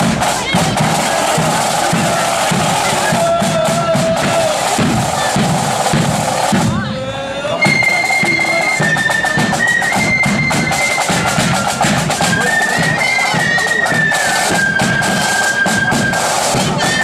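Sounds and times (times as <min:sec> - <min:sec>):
drums beating regular rhythm: 0:00.0 - 0:17.0
bagpipes playing melody: 0:07.6 - 0:17.0.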